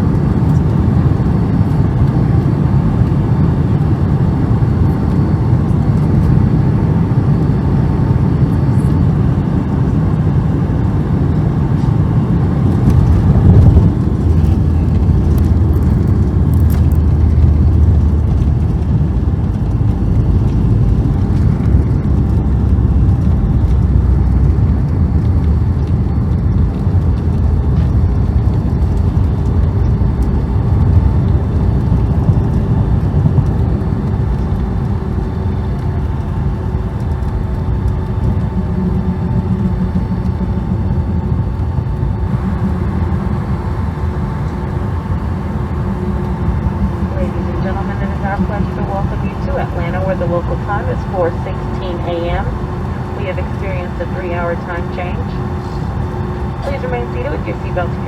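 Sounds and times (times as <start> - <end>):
aircraft engines and airflow rumble: 0.0 - 58.0
rollout rumble: 12.6 - 58.0.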